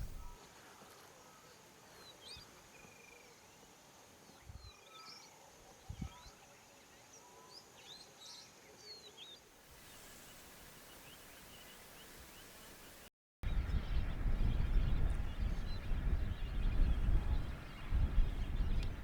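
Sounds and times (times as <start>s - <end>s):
background hiss: 0.0s - 0.4s, 9.2s - 13.1s
soft low thumps: 0.0s - 0.4s.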